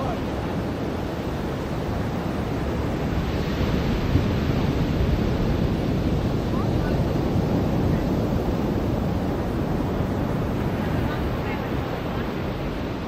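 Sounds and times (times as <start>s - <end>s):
waves breaking on beach: 0.0s - 13.0s
wind on microphone: 0.0s - 13.0s.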